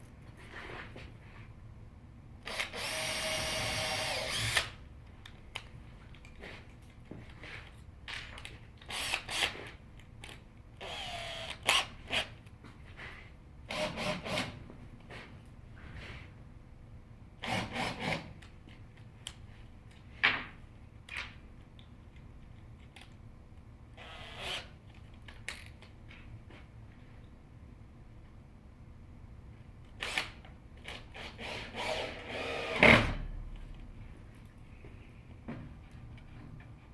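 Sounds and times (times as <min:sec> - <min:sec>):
power drill running: 0:02.5 - 0:04.8, 0:10.8 - 0:11.9, 0:31.2 - 0:32.9.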